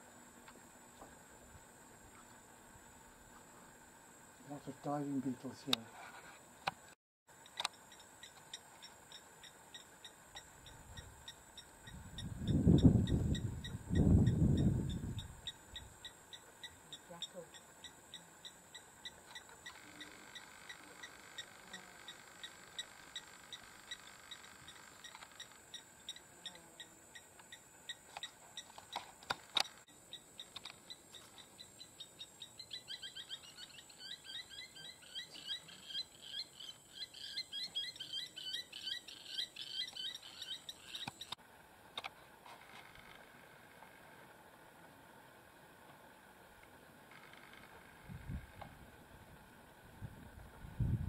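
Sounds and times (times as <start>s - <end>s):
birds chirping: 7.4s - 41.4s.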